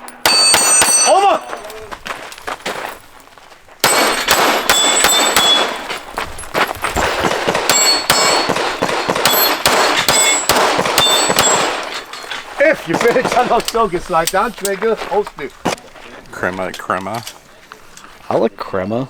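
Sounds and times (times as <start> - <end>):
steel targets ringing: 0.0 - 1.9, 3.8 - 15.8
pistol shots: 0.1 - 1.1, 3.8 - 6.2, 7.0 - 12.1.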